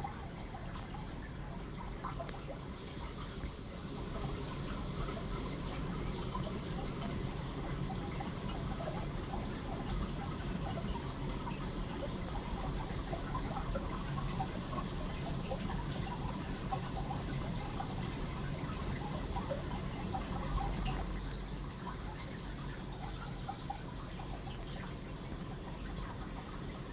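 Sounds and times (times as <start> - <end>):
aquarium water trickling: 0.0 - 26.9.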